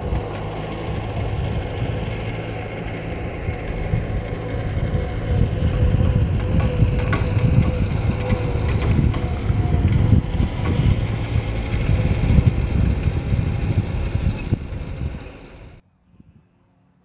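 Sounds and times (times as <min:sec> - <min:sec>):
loader diesel engine running: 0:00.0 - 0:15.8
knocks: 0:06.0 - 0:11.5.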